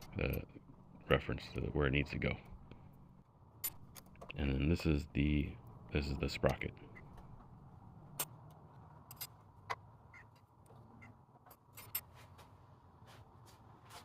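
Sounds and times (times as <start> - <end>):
low steady hum: 0.0 - 14.0
small metal parts clicking: 3.6 - 4.4, 8.1 - 9.4, 10.1 - 12.1.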